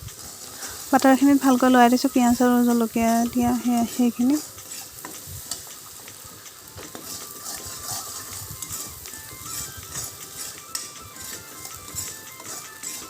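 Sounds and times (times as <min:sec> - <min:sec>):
onions sizzling in butter: 0:00.0 - 0:13.0
spatula scraping a pan: 0:04.4 - 0:05.9, 0:06.8 - 0:13.0.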